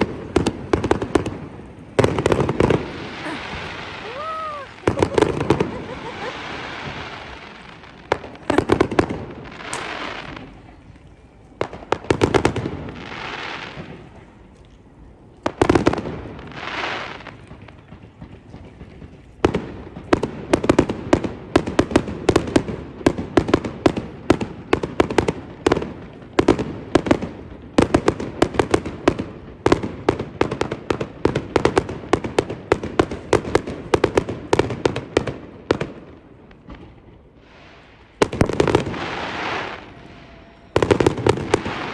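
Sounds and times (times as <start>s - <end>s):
firework hiss: 0.0s - 10.7s, 11.6s - 14.2s, 15.5s - 17.7s, 37.4s - 41.9s
firework bangs: 0.0s - 10.9s, 11.5s - 14.5s, 15.4s - 41.9s.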